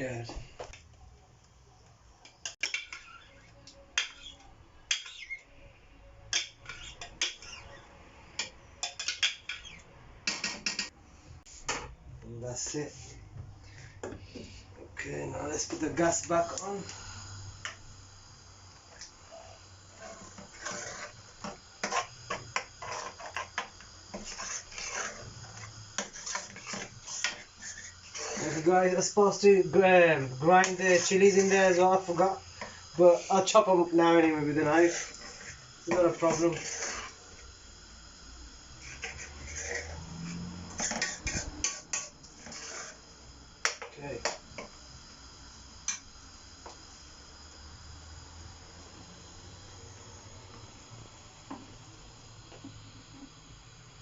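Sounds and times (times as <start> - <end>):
metal spoon scraping blender jug: 20.0 - 28.7, 38.8 - 43.0.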